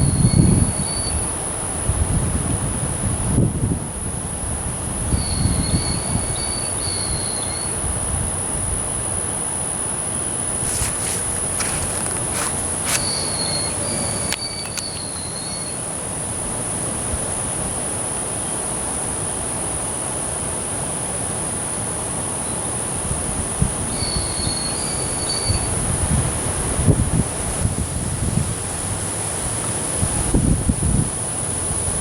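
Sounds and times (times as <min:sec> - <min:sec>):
rushing outdoor noise: 0:00.0 - 0:23.9
high-pitched insect drone: 0:10.3 - 0:16.3.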